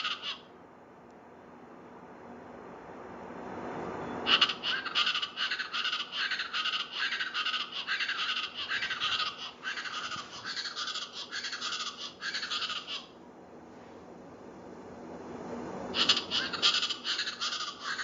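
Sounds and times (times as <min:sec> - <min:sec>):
chachalaca harsh rasping calls: 0:00.0 - 0:00.5, 0:04.3 - 0:13.2, 0:16.0 - 0:18.0.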